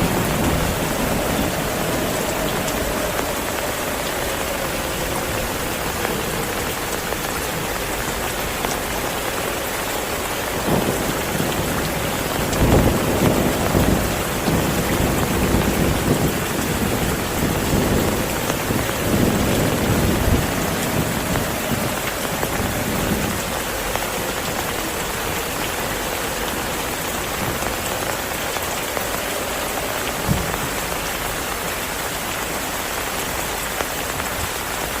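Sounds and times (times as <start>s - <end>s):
rolling thunder rumble: 0.0s - 31.9s
heavy rain: 0.0s - 35.0s
low thump of thunder: 30.2s - 30.8s.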